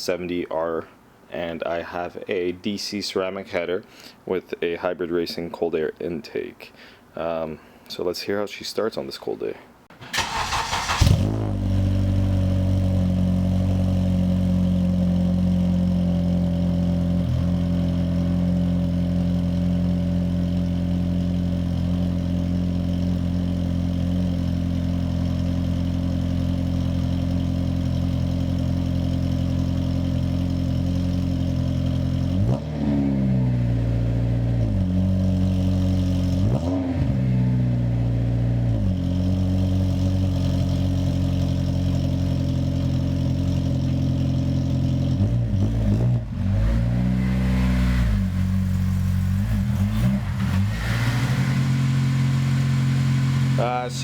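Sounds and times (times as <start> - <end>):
car engine starting and idling: 9.9 - 54.0
engine revving: 10.1 - 20.4, 30.8 - 54.0.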